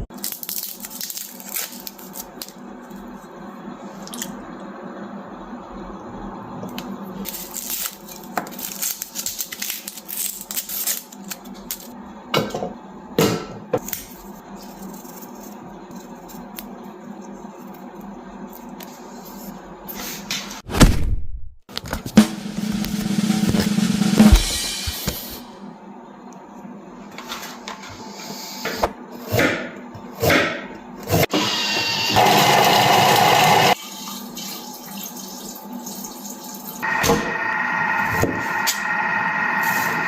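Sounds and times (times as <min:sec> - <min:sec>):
low background hum: 0:00.0 - 0:20.8, 0:23.7 - 0:31.2.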